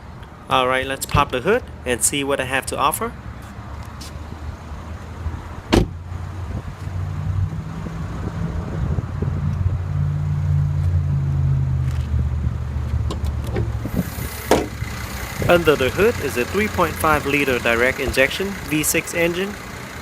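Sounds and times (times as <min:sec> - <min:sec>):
car engine idling: 0:13.1 - 0:20.0.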